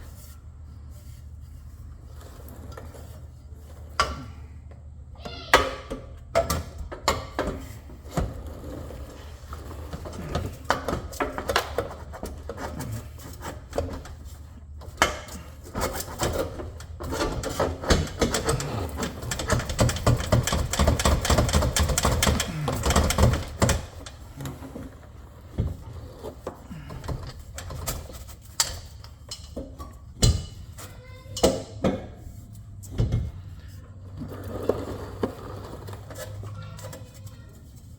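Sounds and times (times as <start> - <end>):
tools clicking and knocking: 15.0 - 24.2.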